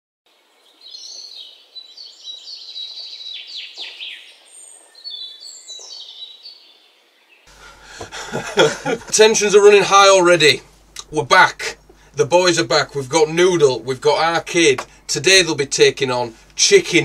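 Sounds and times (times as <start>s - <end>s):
birds chirping and twittering: 0.3s - 9.2s.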